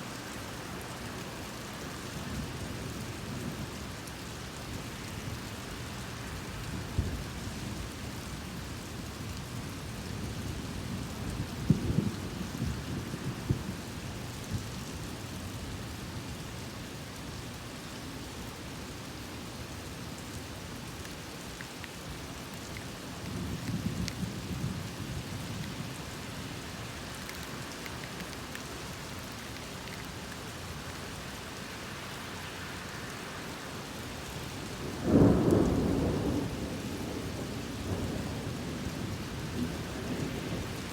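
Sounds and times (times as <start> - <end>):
heavy rain falling: 0.0 - 40.9
thunder rumbling: 34.9 - 40.9
sharp thunderclap: 35.1 - 38.5.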